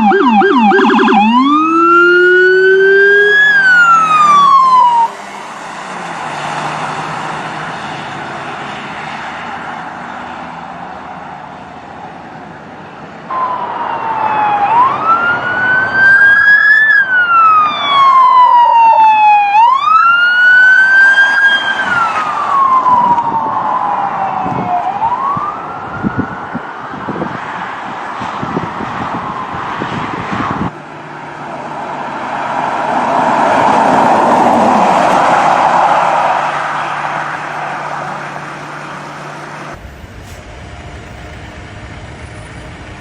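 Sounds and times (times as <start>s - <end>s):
police siren wailing: 0.0s - 8.2s, 13.3s - 30.7s, 32.8s - 42.0s
steady rushing noise: 31.8s - 43.0s.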